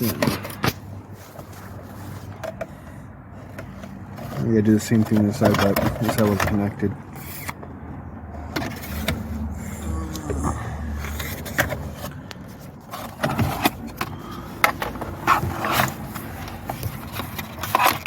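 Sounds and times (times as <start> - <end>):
plastic clicks and scraping: 3.5 - 7.7, 11.0 - 18.0.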